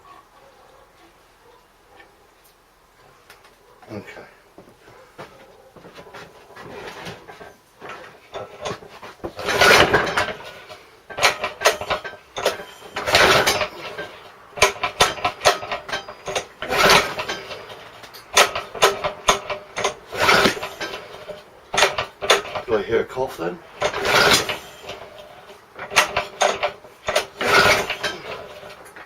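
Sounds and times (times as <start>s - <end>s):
recoil starter pulls: 5.2s - 29.0s
rattling clicks: 6.0s - 22.8s, 23.7s - 29.0s
engine cranking over: 6.0s - 29.0s.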